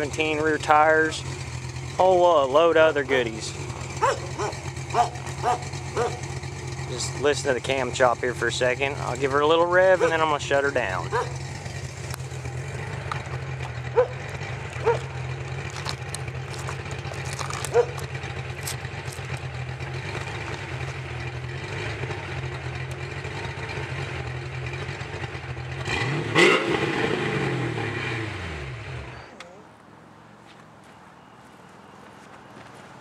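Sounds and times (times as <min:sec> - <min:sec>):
car engine idling lumpy: 0:00.0 - 0:26.1
engine revving: 0:00.0 - 0:29.3.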